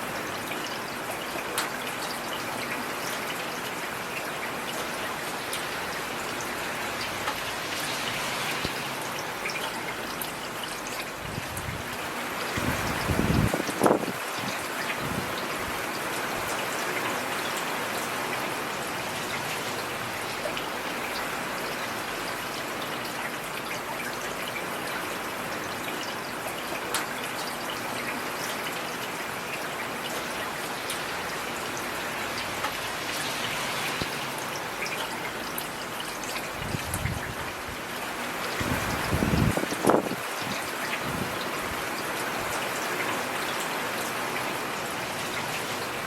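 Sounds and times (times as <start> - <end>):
heavy rain falling: 0.0 - 46.0.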